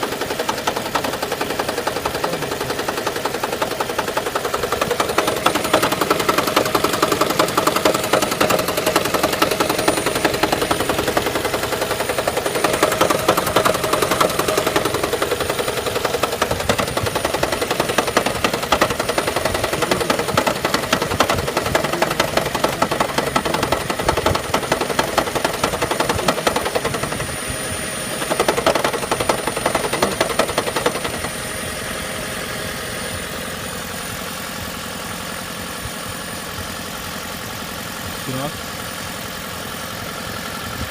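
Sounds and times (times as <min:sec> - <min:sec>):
car engine knocking clatter: 0:00.0 - 0:40.9.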